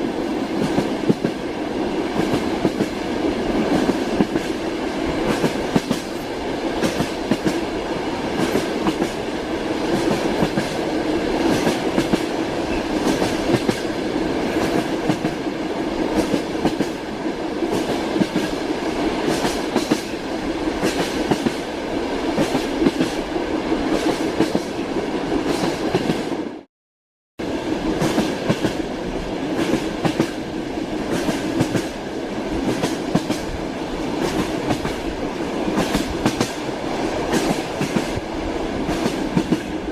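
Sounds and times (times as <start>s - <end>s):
train wheels clacking on rail joints: 0.6s - 1.4s, 2.1s - 4.6s, 5.2s - 7.6s, 8.3s - 9.2s, 9.8s - 15.4s, 16.1s - 17.0s, 19.2s - 20.2s, 20.8s - 21.6s, 31.1s - 32.0s, 32.6s - 35.1s, 35.7s - 38.2s, 38.8s - 39.8s.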